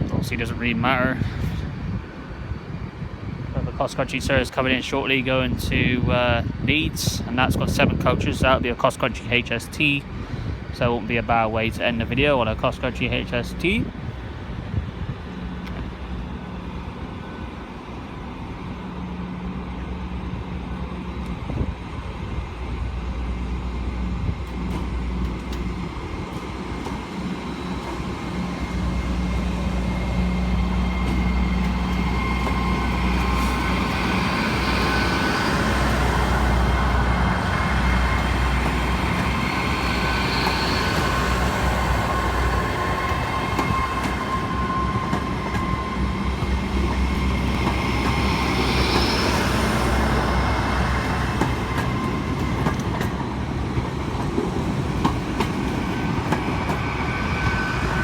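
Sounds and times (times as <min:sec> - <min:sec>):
train engine hum: 0:00.0 - 0:58.0
high-pitched wheel squeals: 0:39.3 - 0:47.4.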